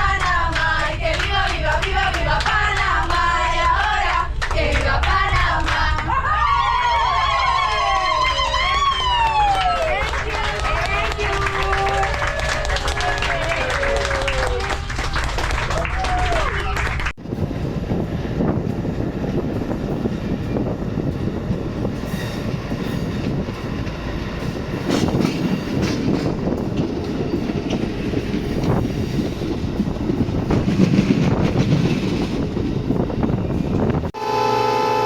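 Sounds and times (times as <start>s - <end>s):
train rumbling on track: 0.0s - 35.0s
train wheels clacking: 18.5s - 33.9s.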